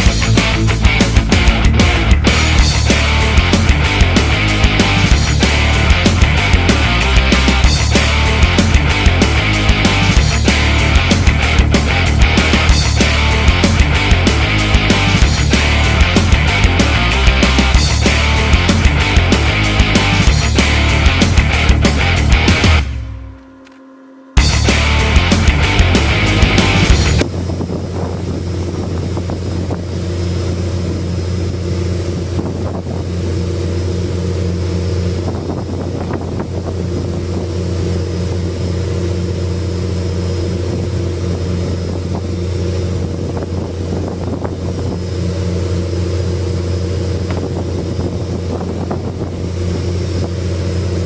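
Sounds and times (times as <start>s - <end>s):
rock music: 0.0s - 23.4s, 24.4s - 27.3s
boat engine droning: 0.0s - 51.0s
wind noise on microphone: 26.8s - 33.7s, 34.8s - 38.8s, 40.4s - 51.0s.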